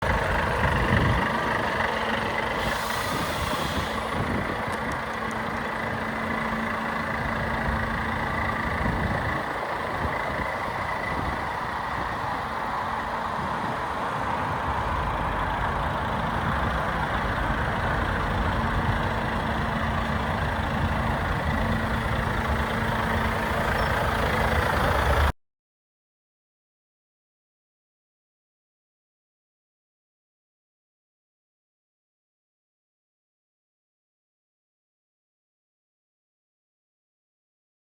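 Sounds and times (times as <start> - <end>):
diesel truck engine idling: 0.0 - 25.3
air hiss: 2.6 - 4.0.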